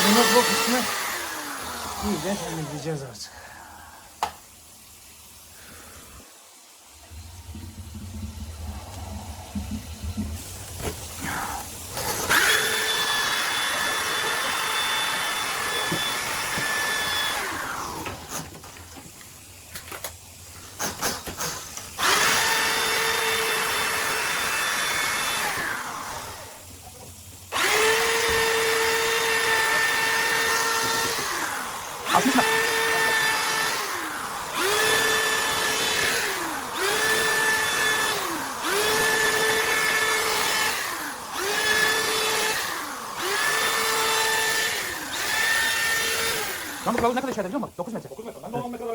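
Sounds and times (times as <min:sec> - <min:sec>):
drain cleaning machine motor whine: 0:00.0 - 0:03.1, 0:06.8 - 0:18.8, 0:22.0 - 0:26.6, 0:27.5 - 0:47.6.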